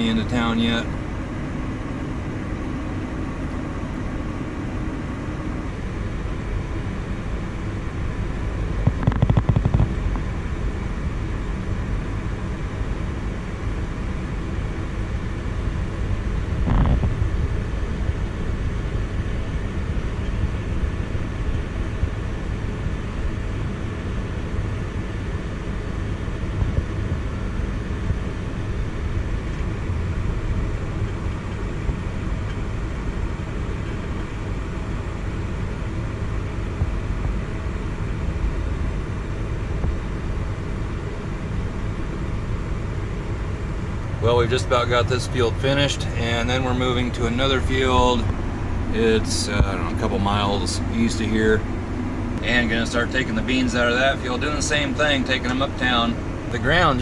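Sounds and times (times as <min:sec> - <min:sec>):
tractor engine idling: 0:00.0 - 0:08.2, 0:42.6 - 0:57.0.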